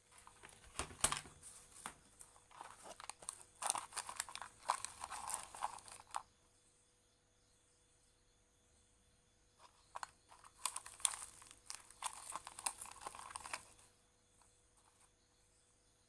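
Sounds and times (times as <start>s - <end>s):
rustling and crinkling handling noise: 0.0s - 6.2s, 9.6s - 15.1s.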